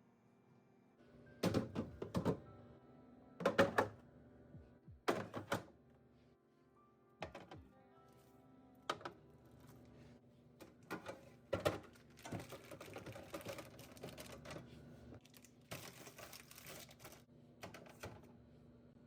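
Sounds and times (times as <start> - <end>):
household items clicking and clattering: 10.6 - 14.7.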